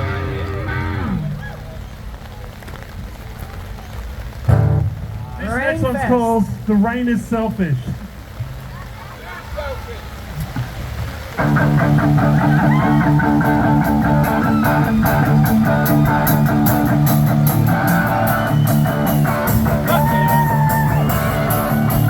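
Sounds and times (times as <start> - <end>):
distorted guitar chords: 0.0 - 1.4, 4.5 - 7.4, 11.4 - 22.0
bass: 0.0 - 1.9, 4.5 - 5.9, 11.4 - 22.0
rock band playing live: 4.5 - 5.6, 11.4 - 22.0.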